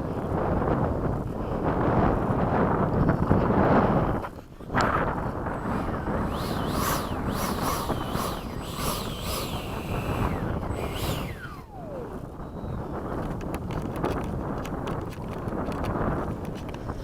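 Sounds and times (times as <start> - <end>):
wind rumble on microphone: 0.0 - 17.0
electric ducted-fan whine: 3.4 - 17.0.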